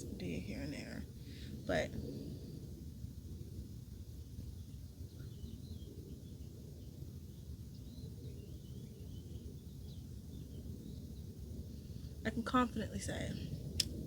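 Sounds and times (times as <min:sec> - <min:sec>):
low background rumble: 0:00.0 - 0:14.0
faint bird chirps: 0:04.2 - 0:12.4.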